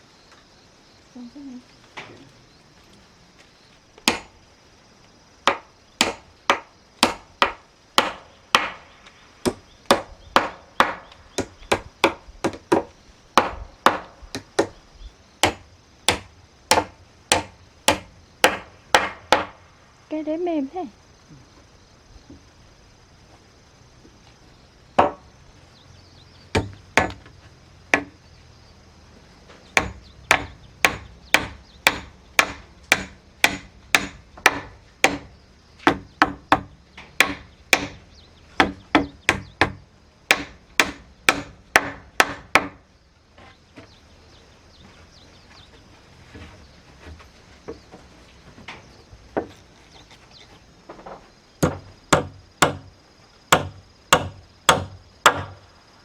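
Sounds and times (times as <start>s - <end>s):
hand tool striking wood: 4.0s - 4.4s, 5.4s - 14.8s, 25.0s - 25.2s, 26.5s - 27.3s, 27.9s - 28.2s, 29.7s - 38.0s, 38.6s - 42.8s, 49.4s - 52.9s, 53.5s - 55.6s.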